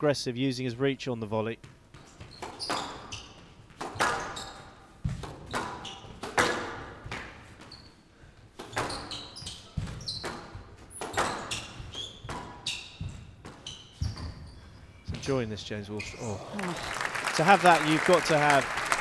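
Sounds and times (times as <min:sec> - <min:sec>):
sneakers squeaking on court floor: 0:01.6 - 0:16.5
squash ball hits echoing: 0:03.7 - 0:04.4, 0:05.0 - 0:07.4, 0:08.6 - 0:14.4.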